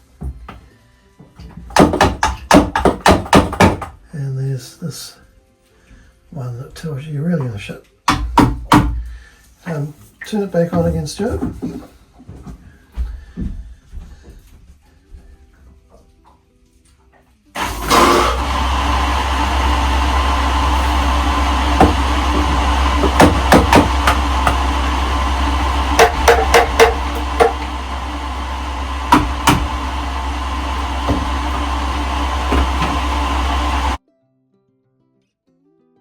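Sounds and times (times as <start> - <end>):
sharp knocks: 1.7 - 3.9, 21.8 - 24.8, 25.6 - 28.0, 29.0 - 29.9
electric pump humming: 17.6 - 34.0.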